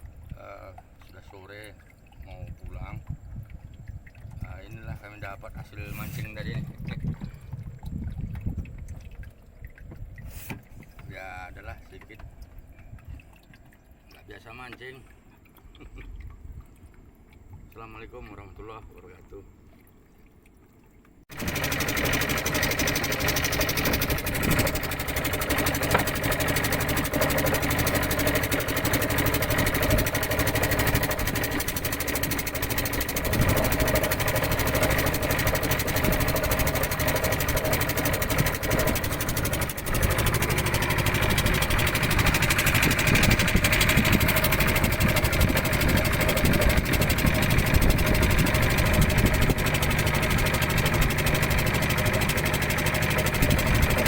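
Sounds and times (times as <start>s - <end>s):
boat engine droning: 21.3s - 54.0s.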